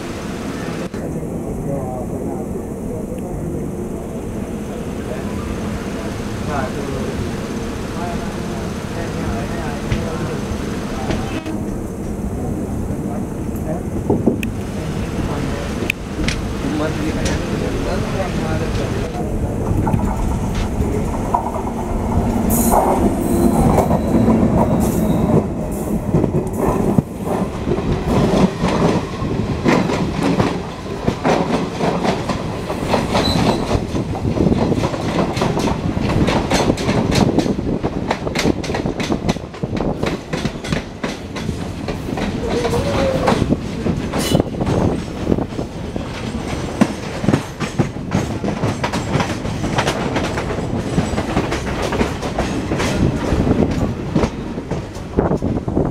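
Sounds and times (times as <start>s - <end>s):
train rumble: 0.0s - 55.9s
rushing air: 10.0s - 42.4s
wheels clacking over rail joints: 13.5s - 55.8s.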